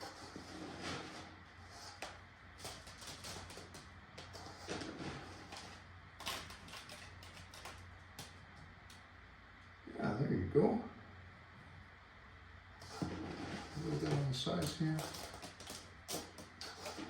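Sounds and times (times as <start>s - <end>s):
steady low hum: 0.0s - 17.0s
small items clicking and knocking: 2.0s - 4.4s, 5.4s - 9.0s, 14.6s - 17.0s.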